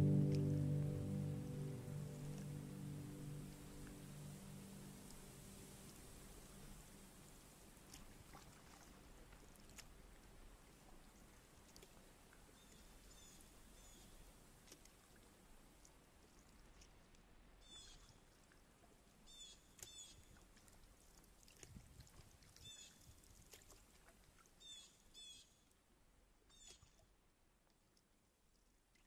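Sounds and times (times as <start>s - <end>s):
faint bird chirps: 17.6s - 18.1s, 19.3s - 20.3s, 24.6s - 25.7s, 26.5s - 27.0s.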